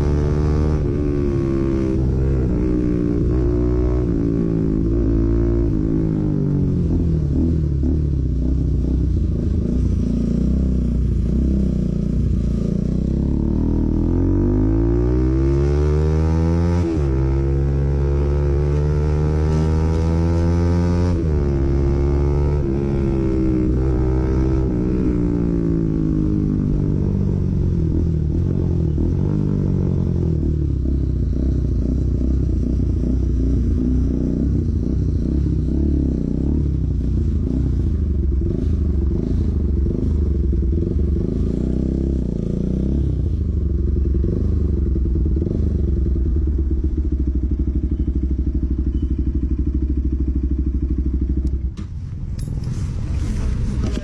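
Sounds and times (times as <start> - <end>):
motorcycle engine idling: 43.3 - 52.6.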